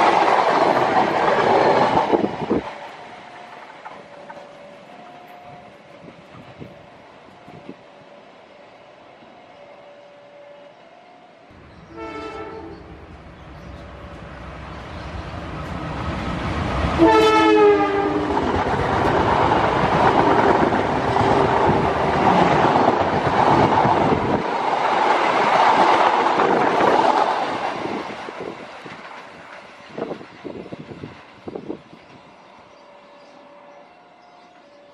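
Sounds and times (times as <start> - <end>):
train wheels running on rails: 0.0 - 9.9, 12.8 - 34.9
locomotive horn blast: 11.8 - 13.2, 17.0 - 18.6.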